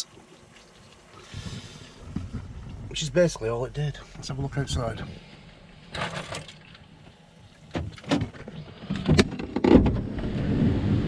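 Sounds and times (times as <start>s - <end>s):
steady outdoor hiss: 0.0s - 11.0s
van door clicks and clunks: 7.7s - 10.2s.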